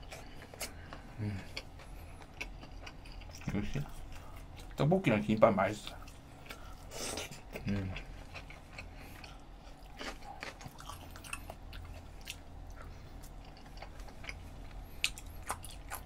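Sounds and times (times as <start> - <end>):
person chewing rice cakes: 0.0 - 4.8, 5.8 - 16.0.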